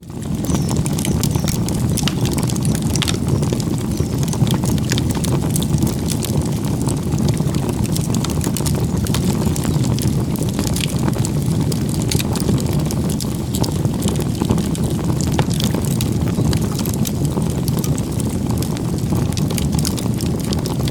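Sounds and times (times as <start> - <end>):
burning wood crackling: 0.0 - 20.9
campfire flames roaring: 0.0 - 20.9
faint bird chirps: 0.4 - 4.3.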